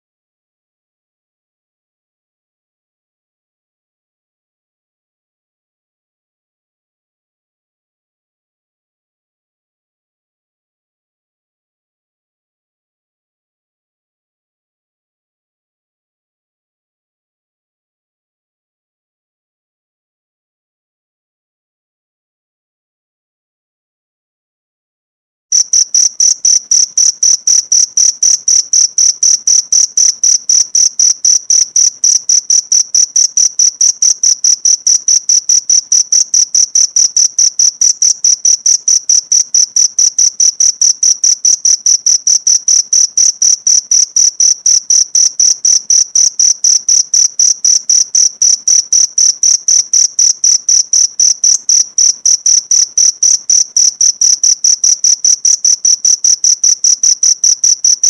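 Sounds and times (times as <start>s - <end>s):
cricket chirping: 25.5s - 58.0s.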